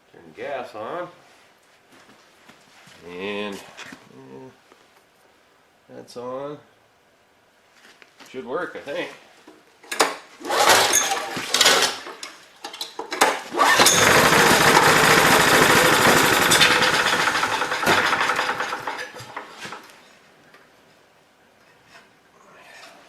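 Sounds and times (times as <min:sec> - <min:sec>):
generator pull-start: 0:09.9 - 0:19.9
generator engine running: 0:13.5 - 0:19.5.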